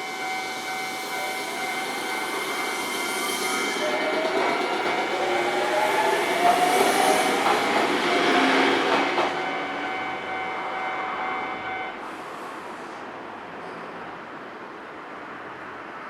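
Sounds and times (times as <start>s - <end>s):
level crossing warning bell: 0.0s - 5.8s
train running over rails: 0.0s - 16.0s.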